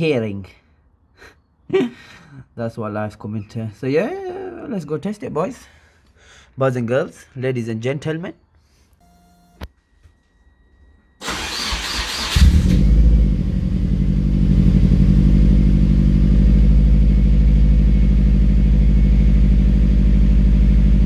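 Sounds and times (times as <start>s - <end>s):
starter motor cranking: 11.2s - 12.8s
car engine idling: 11.2s - 21.0s.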